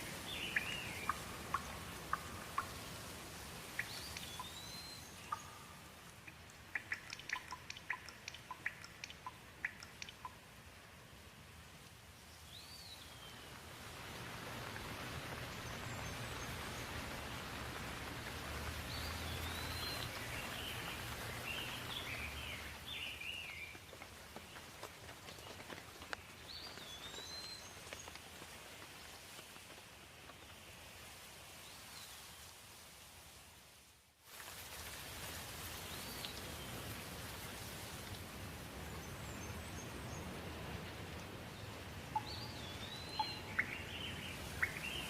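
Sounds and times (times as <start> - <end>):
rain falling: 0.0 - 45.0
bird chirping: 0.1 - 2.8, 3.7 - 10.4, 18.8 - 23.9, 42.1 - 45.0.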